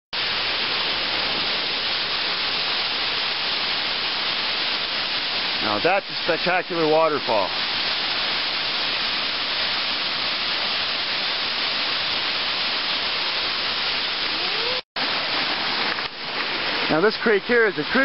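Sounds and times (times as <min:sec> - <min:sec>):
waterfall rushing: 0:00.2 - 0:18.0.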